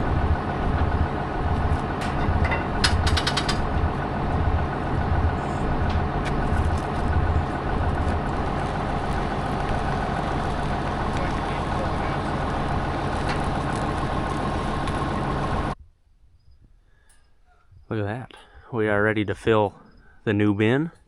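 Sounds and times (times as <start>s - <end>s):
farm machine engine throbbing: 0.0s - 15.8s
sharp metallic clicks: 2.0s - 3.9s.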